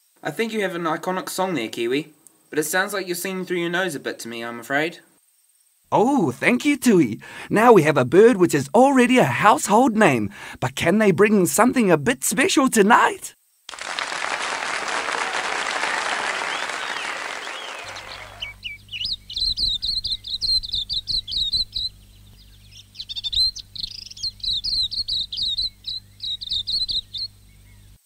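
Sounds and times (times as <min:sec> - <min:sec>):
applause: 0:13.7 - 0:18.6
songbird singing chirping notes: 0:16.6 - 0:28.0.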